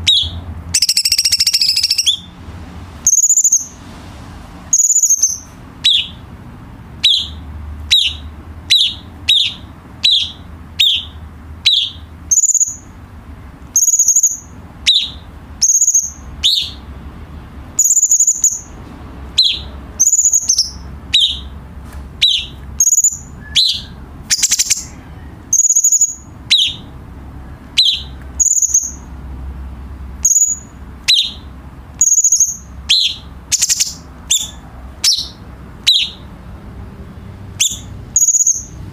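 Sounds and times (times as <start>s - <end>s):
bird whistling high notes: 0.1s - 2.3s, 22.2s - 25.0s.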